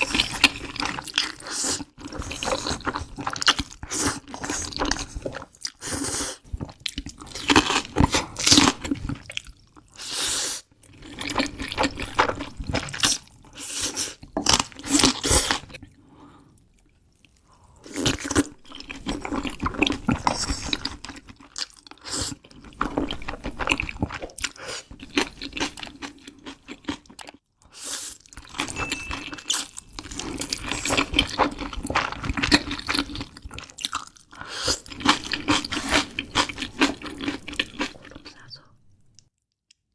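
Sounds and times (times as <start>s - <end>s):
crunching and chewing: 6.6s - 10.0s, 16.8s - 27.4s, 30.0s - 38.4s.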